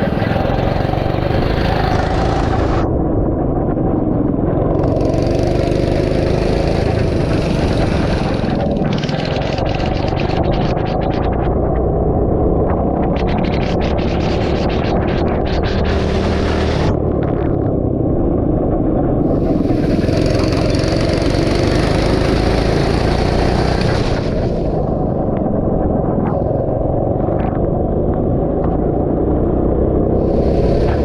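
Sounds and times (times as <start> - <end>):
go-kart engine running: 0.0 - 3.0, 4.6 - 18.4, 19.2 - 25.2, 26.8 - 31.0
hiss: 30.2 - 31.0.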